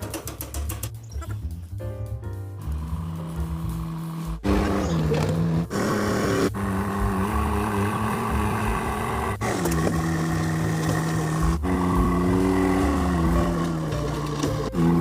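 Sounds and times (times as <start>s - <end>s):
engine droning: 2.6s - 15.0s.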